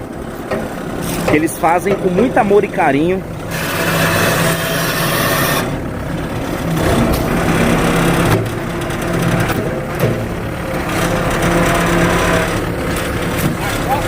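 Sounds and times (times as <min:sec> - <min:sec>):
chainsaw engine revving: 0:03.4 - 0:05.8, 0:10.8 - 0:14.0
chain rasping into wood: 0:03.5 - 0:05.7.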